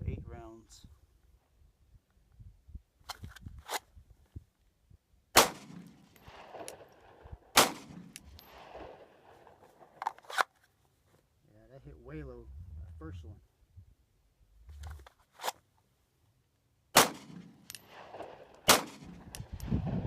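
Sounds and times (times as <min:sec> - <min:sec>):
pistol shots with echo: 0:05.4 - 0:09.3, 0:17.0 - 0:20.0.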